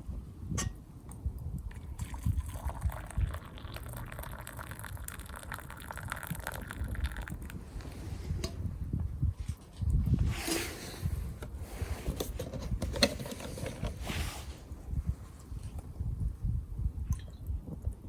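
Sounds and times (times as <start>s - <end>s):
liquid pouring into a mug: 1.7s - 7.6s.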